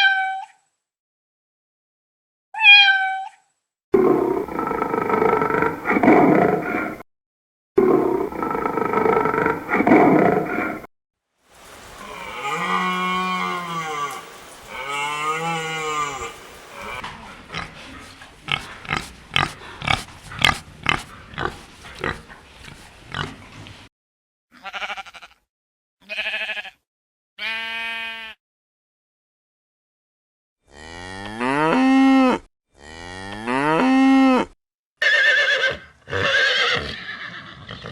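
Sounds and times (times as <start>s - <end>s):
big cat roar: 4.0s - 7.0s, 7.8s - 10.9s, 11.9s - 23.8s
rising and falling animal calls: 4.0s - 7.0s, 7.8s - 10.9s, 11.6s - 23.8s
animal short grunts: 16.8s - 23.4s.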